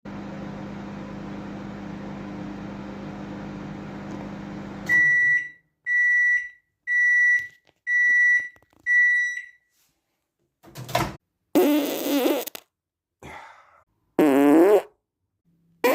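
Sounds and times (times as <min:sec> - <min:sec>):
microwave oven humming: 0:00.1 - 0:05.6
microwave beeps: 0:04.7 - 0:09.6.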